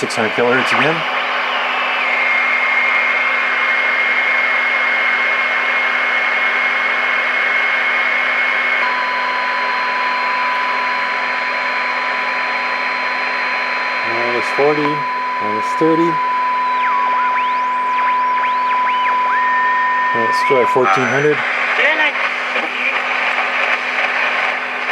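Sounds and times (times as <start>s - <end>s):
radio static hiss: 0.0s - 4.0s, 13.6s - 24.9s
high whistle: 14.2s - 21.2s.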